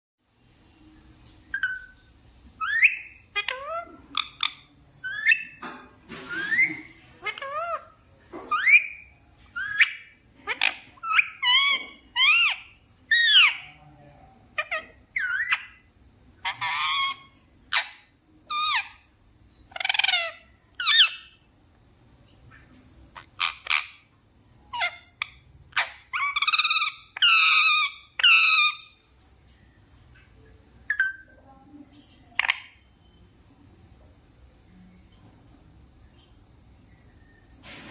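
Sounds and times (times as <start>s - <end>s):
parrot squawking and whistling: 1.5s - 2.0s, 2.6s - 5.6s, 6.2s - 7.9s, 8.5s - 13.6s, 14.6s - 19.1s, 24.7s - 29.0s.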